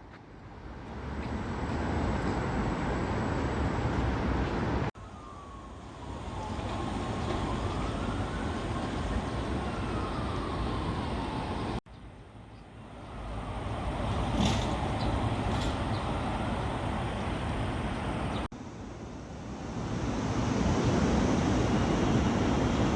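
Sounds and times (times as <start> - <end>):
street noise: 0.0 - 18.5
distant siren wailing: 4.9 - 11.8, 13.0 - 18.3.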